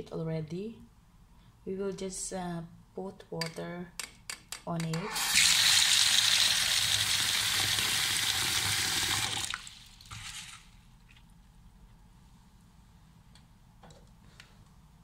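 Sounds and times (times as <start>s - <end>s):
tap water pouring into bowl: 5.4s - 10.6s.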